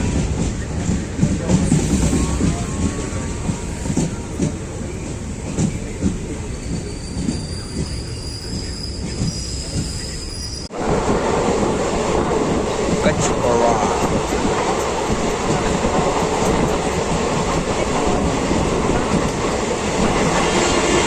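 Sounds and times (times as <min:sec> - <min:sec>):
train rumbling along track: 0:00.0 - 0:21.0
high wheel squeal: 0:01.7 - 0:10.7.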